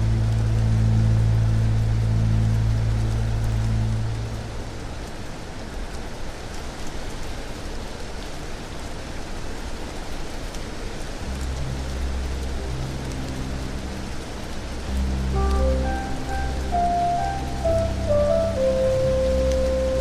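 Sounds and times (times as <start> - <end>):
low musical drone: 0.0 - 5.2, 11.2 - 20.0
steady rain falling: 0.0 - 20.0.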